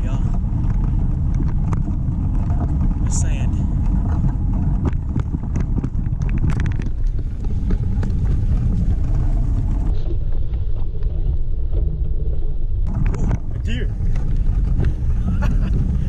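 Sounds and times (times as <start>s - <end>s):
bicycle clicks and rattles: 0.0s - 9.9s
wind buffeting microphone: 0.0s - 16.0s.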